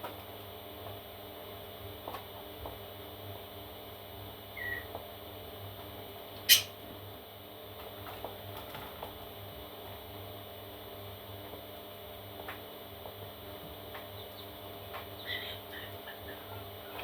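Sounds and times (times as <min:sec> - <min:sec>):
electrical hum: 0:00.0 - 0:17.0
parrot chick chirp: 0:04.6 - 0:04.9, 0:06.4 - 0:06.8, 0:15.1 - 0:17.0.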